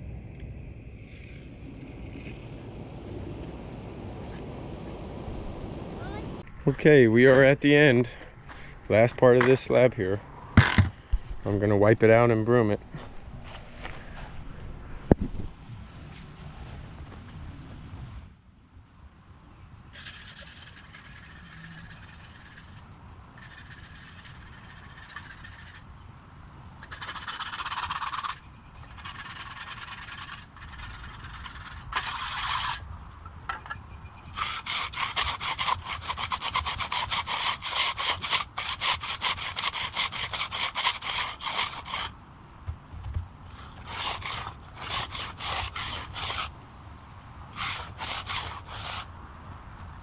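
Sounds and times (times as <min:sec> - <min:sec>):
broom dragged over concrete: 0:08.0 - 0:08.9
tools scraping wet concrete: 0:26.8 - 0:32.8, 0:43.5 - 0:46.5, 0:47.6 - 0:49.1.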